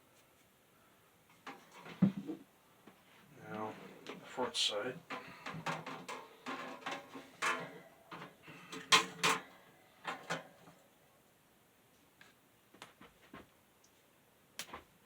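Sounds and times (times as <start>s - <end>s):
metal fan being handled: 1.4s - 2.3s, 5.0s - 10.8s.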